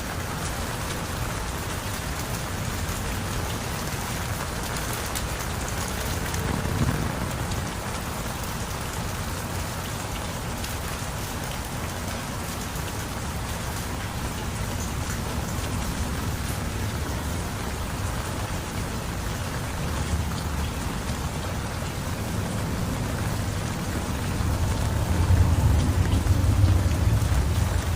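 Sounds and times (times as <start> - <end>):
heavy rain falling: 0.0 - 27.9
low rumble: 6.0 - 8.7.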